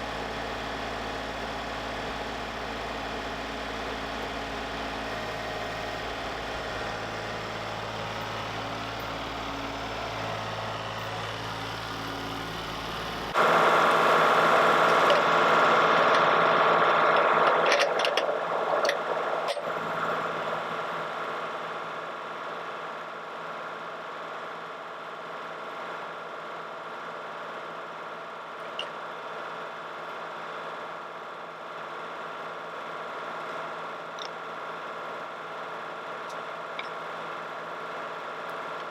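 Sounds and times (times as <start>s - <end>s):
sawmill engine running: 0.0s - 21.3s.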